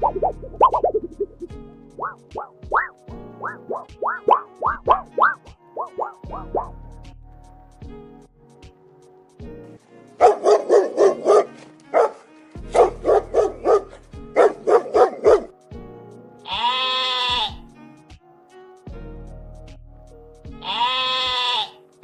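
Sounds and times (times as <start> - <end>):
background music: 0.0 - 22.0
dog barking: 2.0 - 6.7, 10.2 - 15.5
long bleat: 16.4 - 17.8, 20.6 - 21.9.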